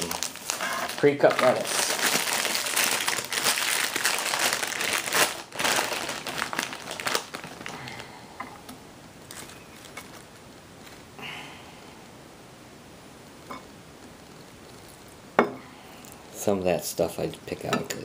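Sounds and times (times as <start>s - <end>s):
plastic bag crinkling: 0.0s - 8.2s, 9.2s - 11.1s.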